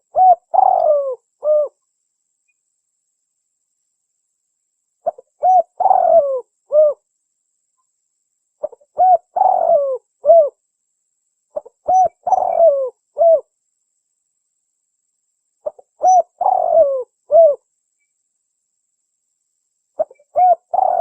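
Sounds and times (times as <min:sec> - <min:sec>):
dove cooing: 0:00.0 - 0:01.8, 0:05.0 - 0:07.0, 0:08.6 - 0:10.6, 0:11.6 - 0:13.5, 0:15.6 - 0:17.6, 0:20.0 - 0:21.0.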